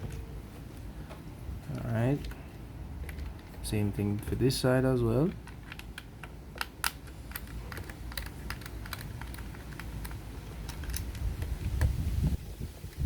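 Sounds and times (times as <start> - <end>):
screwdriver clicking on plastic: 5.3 - 11.9.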